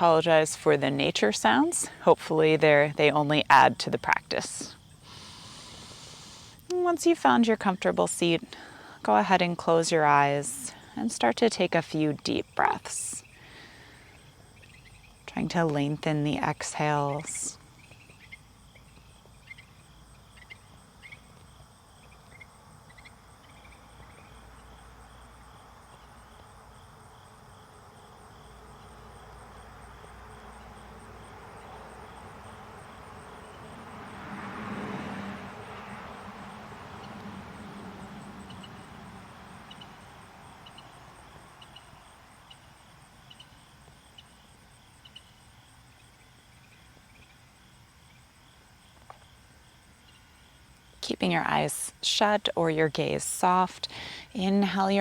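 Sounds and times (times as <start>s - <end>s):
crickets and insects trilling: 0.0s - 55.0s
vehicle passing: 28.5s - 42.5s.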